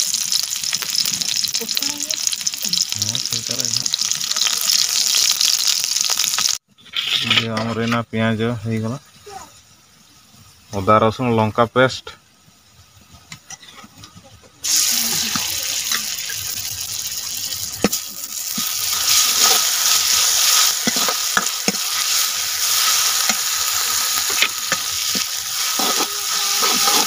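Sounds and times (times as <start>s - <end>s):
paste sizzling in hot oil: 0.0s - 7.6s, 14.4s - 27.0s
ladle scraping and knocking pan: 17.8s - 27.0s.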